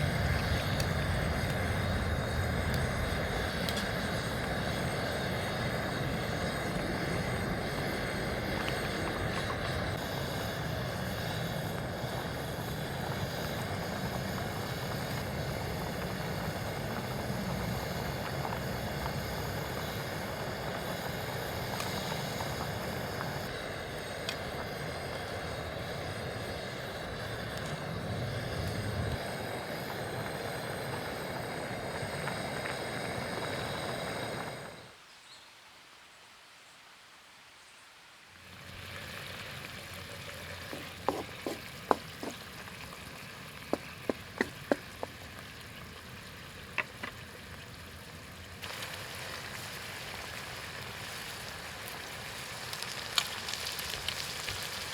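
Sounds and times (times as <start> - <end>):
oil sizzling in a frying pan: 0.0 - 34.7, 38.4 - 54.9.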